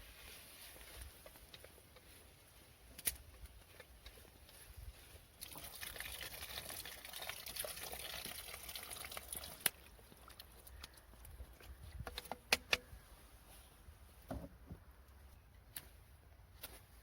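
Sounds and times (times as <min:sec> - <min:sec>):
liquid trickling: 0:05.4 - 0:10.9
sharp clicks or knocks: 0:12.0 - 0:12.9.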